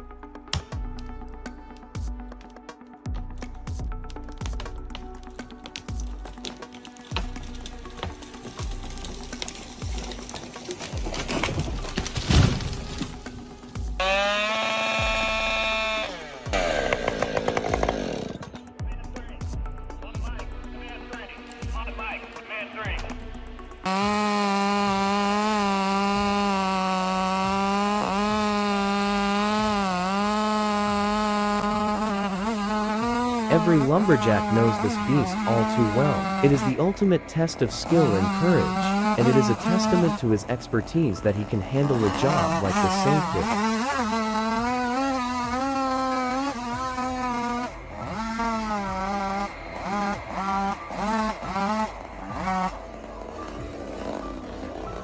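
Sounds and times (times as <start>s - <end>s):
chainsaw cutting wood: 3.6s - 18.8s, 23.8s - 55.0s.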